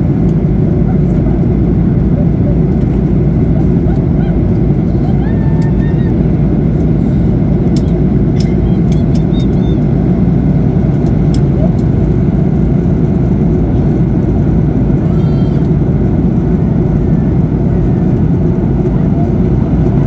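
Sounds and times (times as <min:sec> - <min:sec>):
airplane cabin roar: 0:00.0 - 0:20.0.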